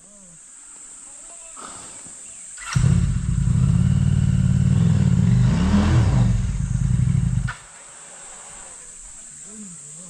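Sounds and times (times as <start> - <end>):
engine cutoff click: 2.6 - 5.5
small motorcycle engine running: 2.7 - 7.6.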